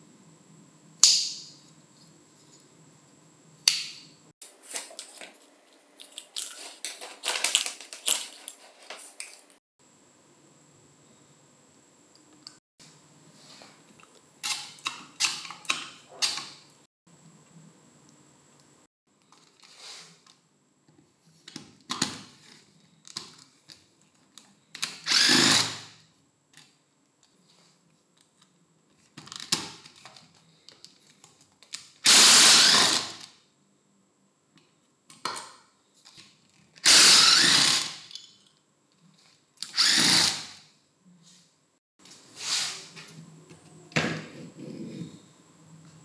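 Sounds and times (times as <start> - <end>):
handheld power tool bursts: 25.0 - 25.9, 32.0 - 33.2, 36.8 - 38.1, 39.6 - 40.6.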